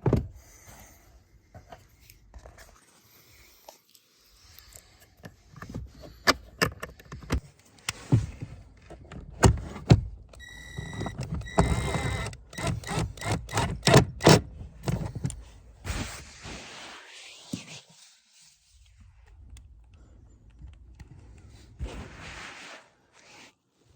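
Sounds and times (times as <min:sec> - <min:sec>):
steady high beep: 0:10.4 - 0:10.9.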